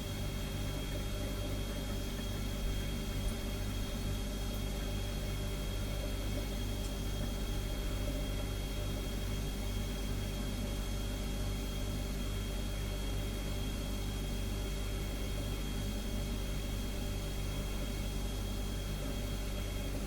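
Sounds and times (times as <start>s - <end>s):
refrigerator humming: 0.0s - 20.0s.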